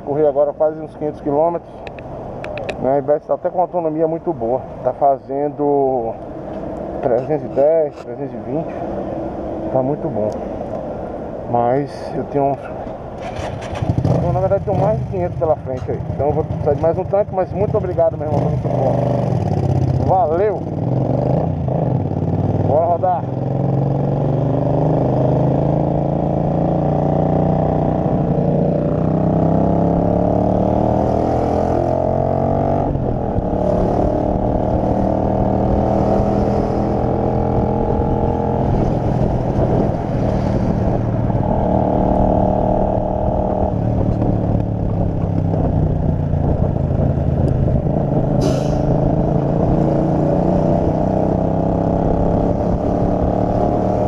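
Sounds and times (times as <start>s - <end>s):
motorcycle engine accelerating: 13.2s - 54.0s.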